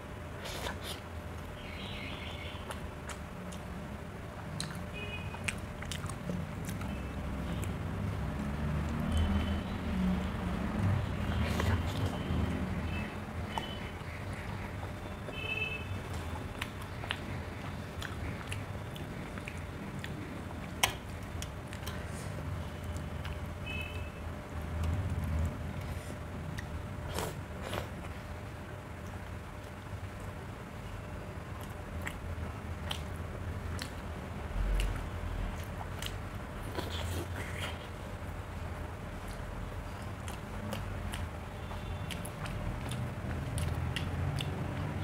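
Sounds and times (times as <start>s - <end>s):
steady low hum: 0.0s - 45.0s
chewing and mouth clicks: 0.4s - 3.8s, 4.4s - 9.5s, 10.2s - 15.3s, 16.0s - 23.6s, 31.5s - 38.1s, 39.2s - 45.0s.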